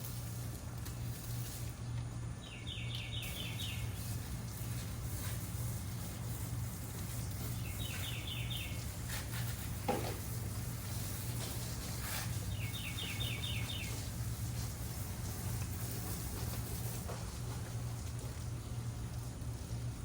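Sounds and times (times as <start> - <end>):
steady low hum: 0.0 - 20.0
songbird chirping: 2.4 - 4.1, 7.4 - 9.0, 12.4 - 14.1.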